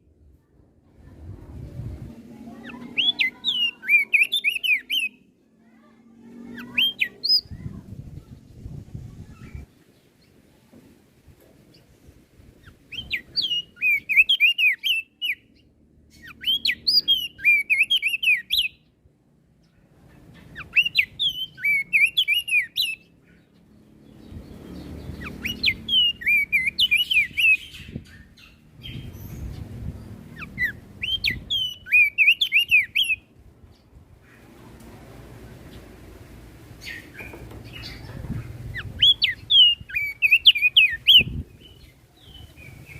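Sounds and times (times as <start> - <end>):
low background rumble: 0.0 - 2.9.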